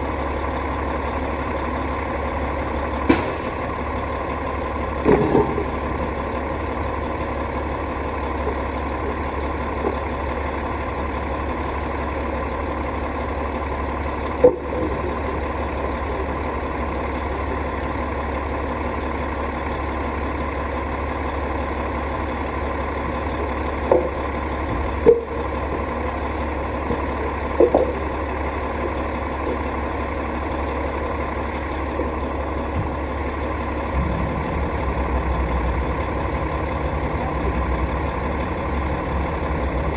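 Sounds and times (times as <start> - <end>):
hvac unit droning: 33.8 - 39.9.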